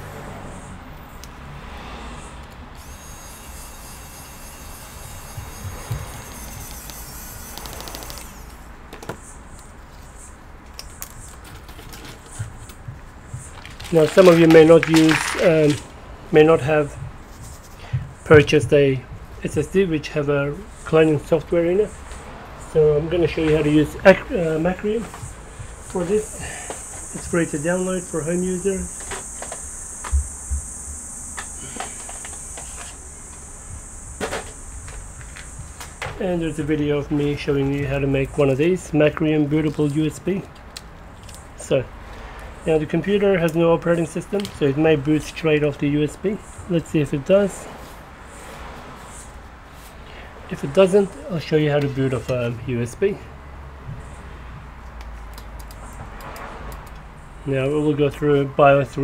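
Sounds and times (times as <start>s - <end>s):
steady hiss: 12.2s - 40.4s
faint whine: 13.3s - 40.2s
soft low thumps: 16.9s - 19.4s
sharp clicks and taps: 54.8s - 57.1s.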